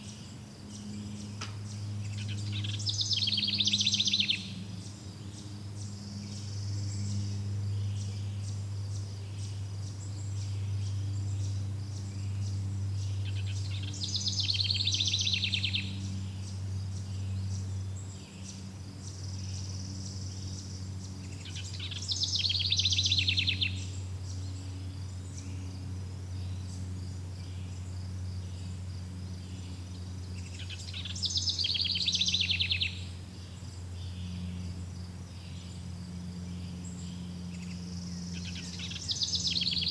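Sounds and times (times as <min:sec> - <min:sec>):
bird trilled song: 0:00.0 - 0:39.9
low steady hum: 0:00.0 - 0:39.9.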